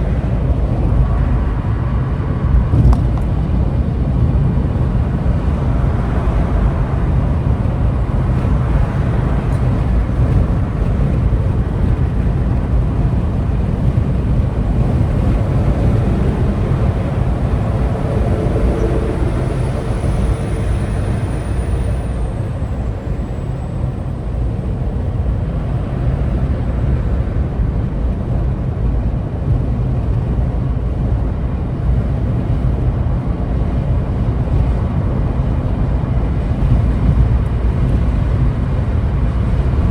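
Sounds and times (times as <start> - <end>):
vehicle engine and road noise: 0.0 - 39.9
faint high thin whine: 14.8 - 24.4.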